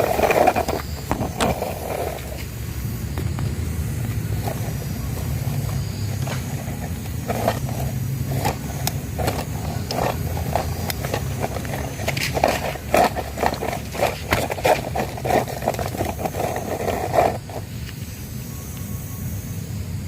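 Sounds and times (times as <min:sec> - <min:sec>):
plastic toy cars clicking and clattering: 0:00.0 - 0:02.6, 0:03.2 - 0:18.0
steady low hum: 0:00.0 - 0:20.0.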